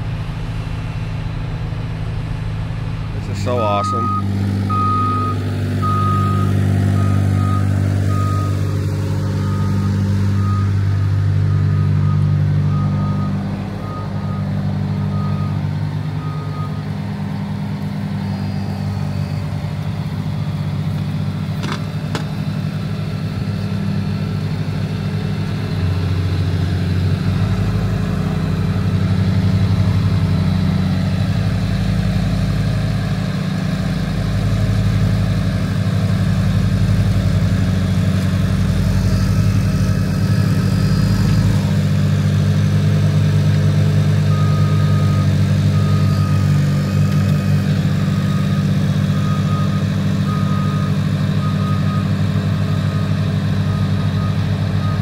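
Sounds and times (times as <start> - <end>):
diesel truck engine running: 0.0 - 55.0
reversing beeper: 3.2 - 16.9, 18.1 - 20.4, 44.1 - 55.0.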